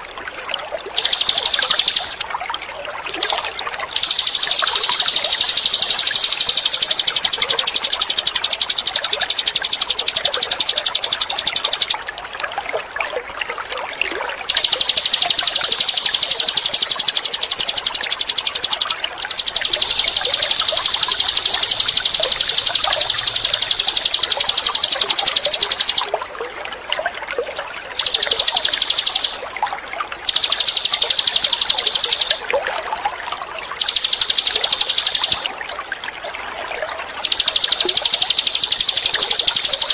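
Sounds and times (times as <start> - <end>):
water trickling: 0.0 - 39.9
bird buzzing trills: 1.0 - 2.2, 3.2 - 12.0, 14.5 - 26.1, 28.0 - 29.4, 30.2 - 32.4, 33.8 - 35.5, 37.2 - 39.9.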